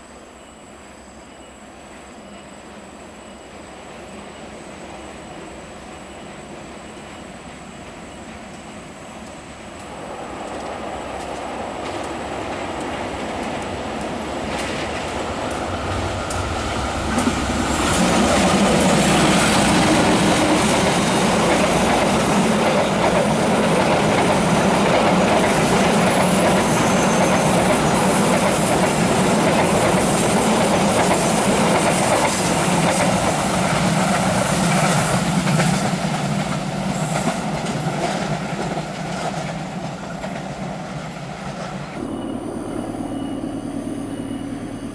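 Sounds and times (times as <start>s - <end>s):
train wheels rushing on rail: 0.0s - 44.9s
low hum: 42.0s - 44.9s.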